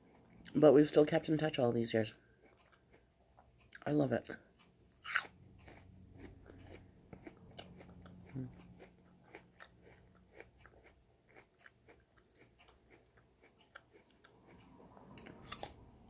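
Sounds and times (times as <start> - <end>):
person chewing food: 0.0 - 0.6, 2.1 - 16.0.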